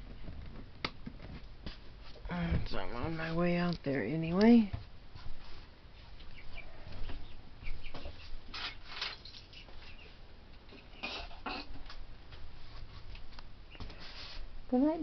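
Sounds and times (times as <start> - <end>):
soft rustling: 4.5 - 10.2, 12.2 - 14.8
chicks peeping: 6.2 - 10.2.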